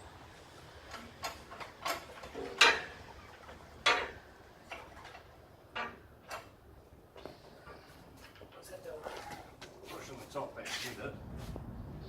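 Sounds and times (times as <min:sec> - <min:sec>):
tools and metal parts knocking: 0:00.9 - 0:06.5.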